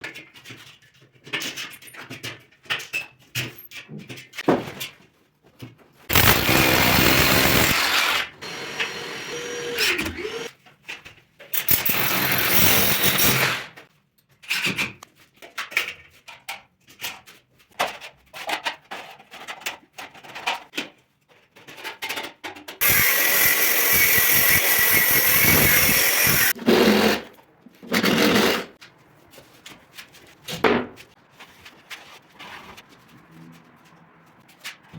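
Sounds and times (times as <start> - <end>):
power tool running: 6.1 - 10.5, 11.7 - 13.7, 22.8 - 26.8.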